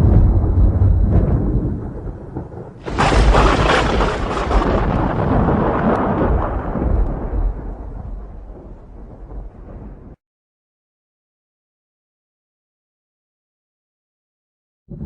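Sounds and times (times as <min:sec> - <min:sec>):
sharp thunder crack: 0:00.0 - 0:10.2
thunder rumbling: 0:00.0 - 0:10.2.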